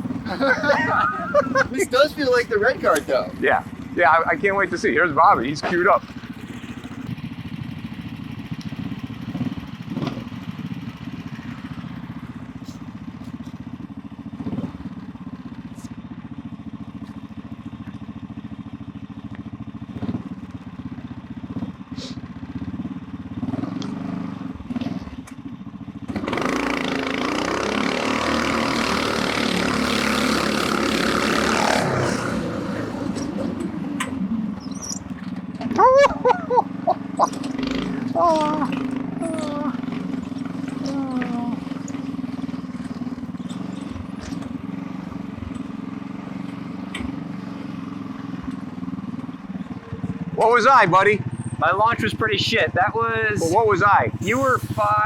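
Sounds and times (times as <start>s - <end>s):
go-kart engine idling and revving: 0.0s - 55.0s.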